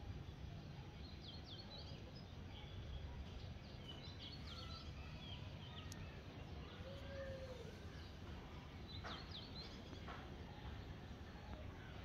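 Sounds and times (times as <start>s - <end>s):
small bird chirping: 1.0s - 6.8s.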